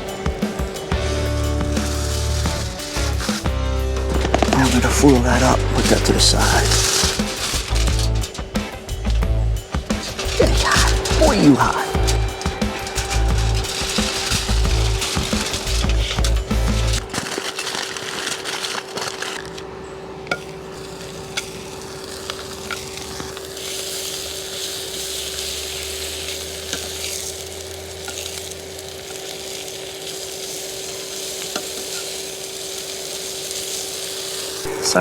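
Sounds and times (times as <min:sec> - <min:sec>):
food sizzling in a pan: 0:00.0 - 0:09.0, 0:09.6 - 0:19.4, 0:20.7 - 0:35.0
fire pops and crackles: 0:00.0 - 0:19.6, 0:20.3 - 0:35.0
electric fan humming: 0:00.0 - 0:35.0.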